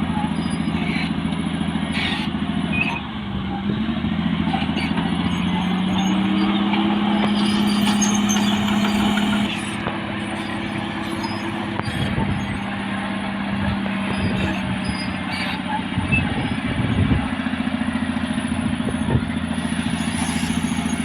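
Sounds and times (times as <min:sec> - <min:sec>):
bulldozer diesel engine under load: 0:00.0 - 0:21.0.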